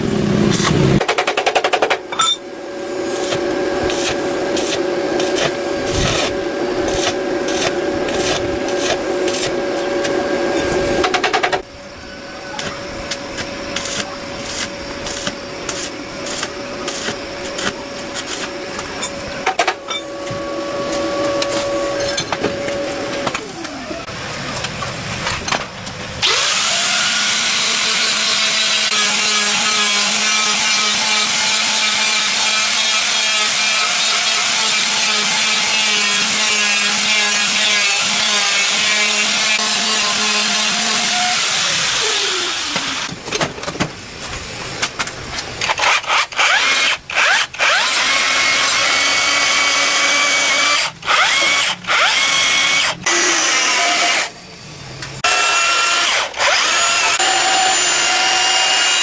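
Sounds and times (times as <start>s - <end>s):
electric power tool grinding: 26.2s - 43.1s, 45.6s - 54.4s, 55.2s - 59.0s.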